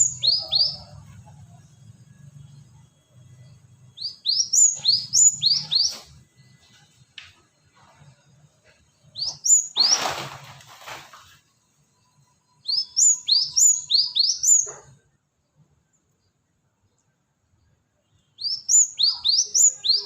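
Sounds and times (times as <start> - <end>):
bird chirping: 0.0 - 10.5, 11.4 - 20.0
rustling burst: 9.8 - 11.4.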